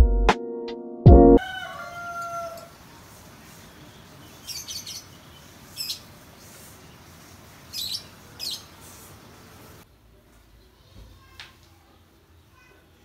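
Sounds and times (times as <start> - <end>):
low background noise: 2.1 - 13.0
small birds chirping: 2.8 - 9.8.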